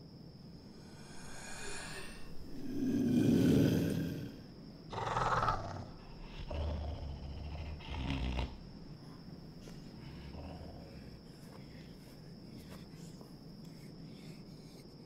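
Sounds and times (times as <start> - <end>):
deep animal-like roar: 0.8 - 8.6
growling grunts: 1.0 - 8.7, 10.0 - 12.0.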